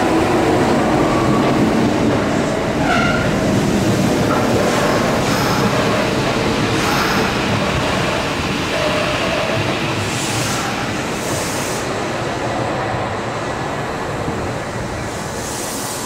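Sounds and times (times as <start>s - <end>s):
train wheel and motor rumble: 0.0s - 16.0s.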